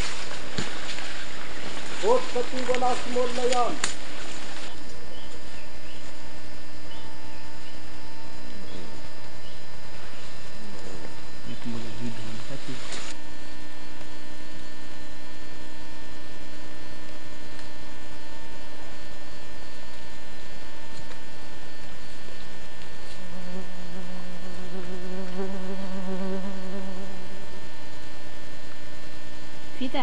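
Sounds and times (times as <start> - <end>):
flying insect buzzing: 0.0 - 13.2, 22.0 - 28.0
electrical hum: 0.0 - 30.0.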